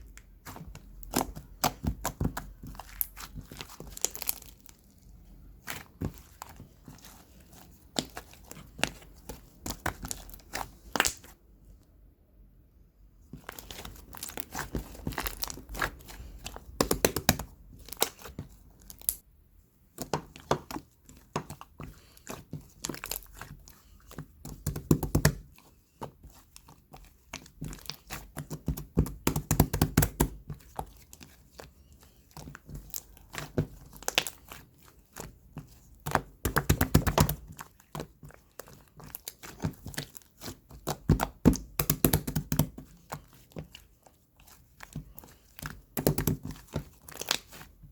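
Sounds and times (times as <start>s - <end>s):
crinkling and tearing rustles: 42.8s - 47.9s.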